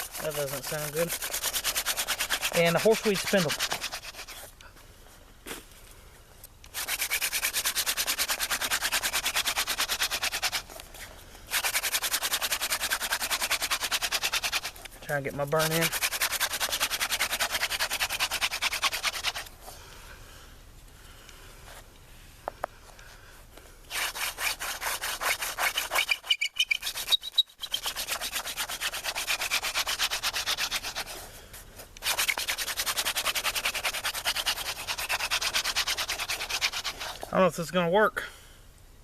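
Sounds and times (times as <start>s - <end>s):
hand drill spindle grinding wood: 0.0s - 4.5s, 6.7s - 10.9s, 11.5s - 19.5s, 23.9s - 31.2s, 32.0s - 37.3s
spindle squeak: 25.9s - 27.9s.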